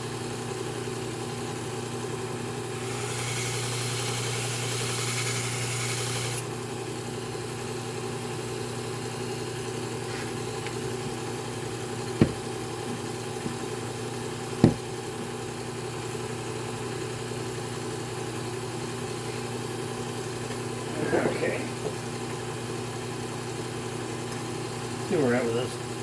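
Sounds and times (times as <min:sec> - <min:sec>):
electric motor humming: 0:02.7 - 0:06.5
sharp knocks: 0:12.2 - 0:12.5, 0:14.6 - 0:14.8.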